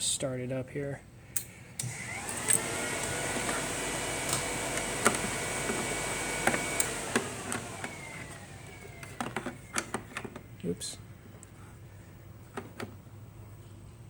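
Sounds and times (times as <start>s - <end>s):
electric motor whining: 1.8s - 10.3s.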